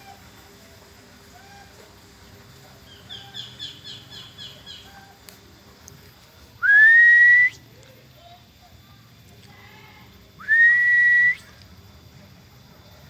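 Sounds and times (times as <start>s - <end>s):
songbird chirping: 2.9s - 5.0s
bird whistle: 6.6s - 7.6s, 10.4s - 11.5s.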